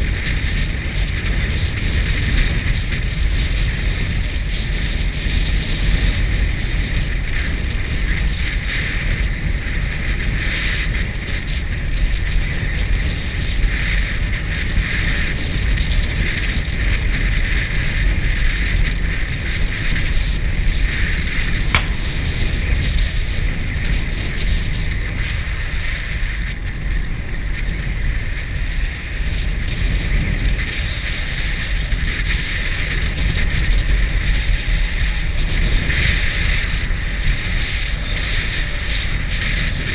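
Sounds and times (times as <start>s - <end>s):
motorcycle road and engine noise: 0.0s - 39.9s
wind buffeting microphone: 0.0s - 39.9s
sharp click: 21.8s - 22.5s.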